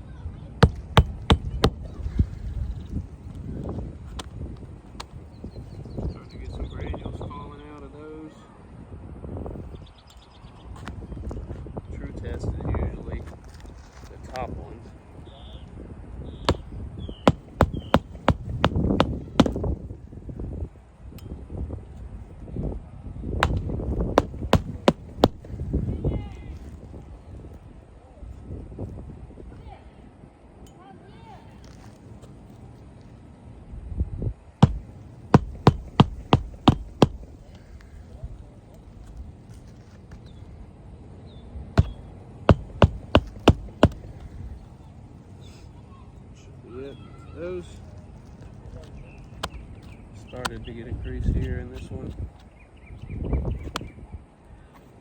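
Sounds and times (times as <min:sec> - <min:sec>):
sharp knocks on shingle roof: 0:00.6 - 0:02.4, 0:17.3 - 0:19.7, 0:23.4 - 0:25.6, 0:34.6 - 0:37.4, 0:41.8 - 0:44.2.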